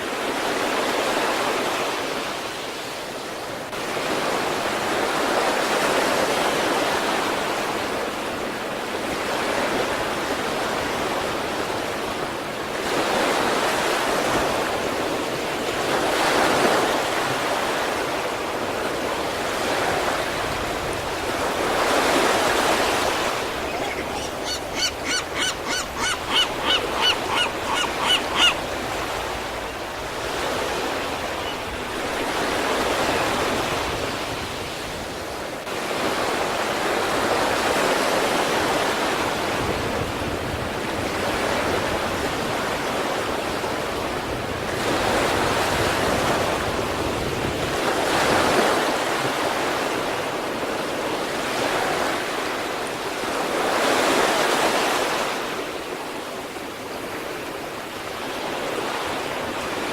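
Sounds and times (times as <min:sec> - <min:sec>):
surf washing onto shore: 0:00.0 - 0:59.9
short high-pitched calls: 0:23.7 - 0:28.6.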